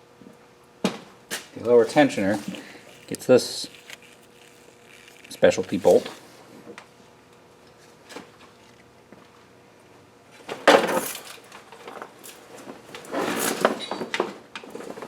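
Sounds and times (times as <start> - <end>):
metal parts clattering: 10.8 - 11.5.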